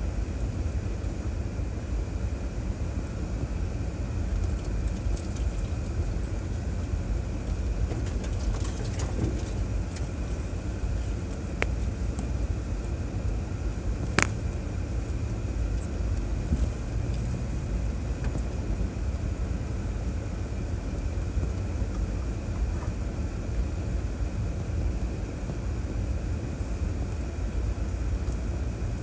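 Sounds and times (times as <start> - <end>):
engine and tyres rumbling: 0.0 - 29.0.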